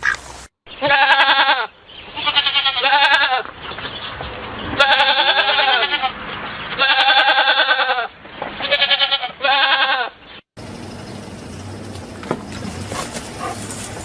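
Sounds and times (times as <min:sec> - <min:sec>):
goat bleating: 0:00.7 - 0:03.5, 0:04.7 - 0:10.2.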